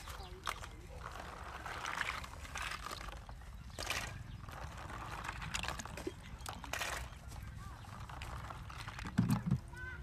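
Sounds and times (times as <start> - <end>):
splashing rustles: 0.0 - 9.7
water sloshing: 0.0 - 9.7.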